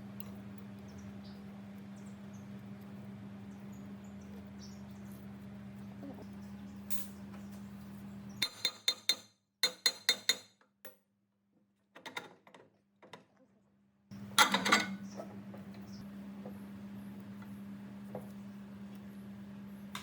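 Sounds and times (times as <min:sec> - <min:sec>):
low steady hum: 0:14.1 - 0:20.0.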